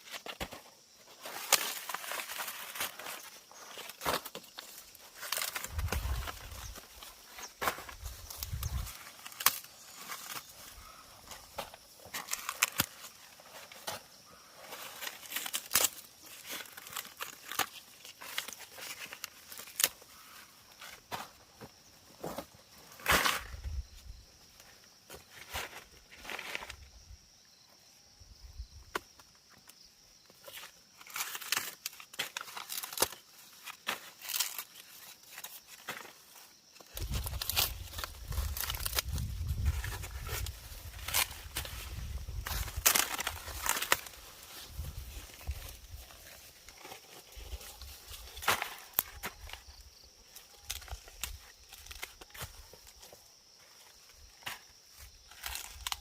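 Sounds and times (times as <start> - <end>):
rustling and tearing dry material: 1.2 - 20.3, 36.8 - 49.4.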